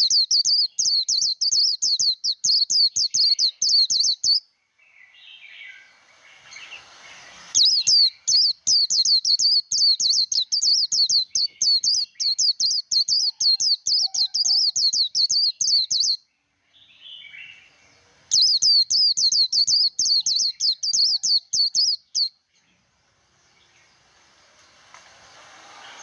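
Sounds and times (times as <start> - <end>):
bird twittering song: 0.0 - 22.8
soft low bird chirps: 0.0 - 24.9.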